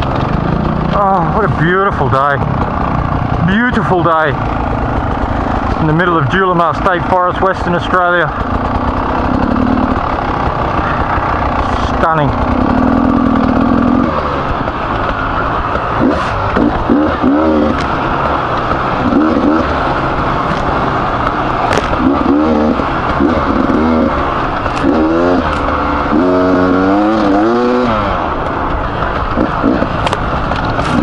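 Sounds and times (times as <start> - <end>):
motorcycle engine revving: 0.0 - 31.0
sharp clicks: 20.4 - 22.4, 28.4 - 31.0.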